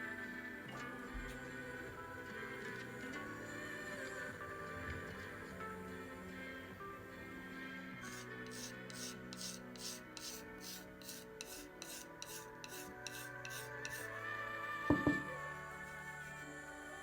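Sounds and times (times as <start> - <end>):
soft background music: 0.0 - 17.0
hand tool scraping clay: 8.0 - 14.1.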